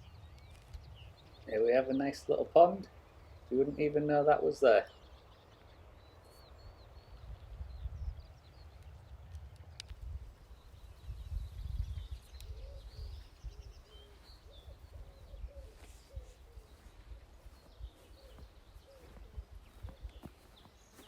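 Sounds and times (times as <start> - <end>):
wind rumble on microphone: 0.0 - 21.0
short low bird calls: 10.3 - 21.0.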